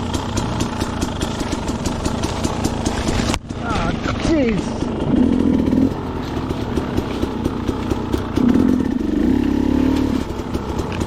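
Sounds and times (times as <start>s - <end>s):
dirt bike engine revving: 0.0s - 11.0s
engine ticking idle: 0.0s - 11.0s.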